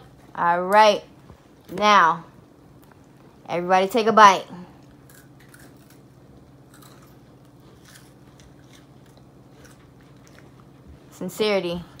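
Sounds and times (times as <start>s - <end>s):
low steady hum: 0.0s - 12.0s
people chewing wafer crunches: 4.8s - 10.8s.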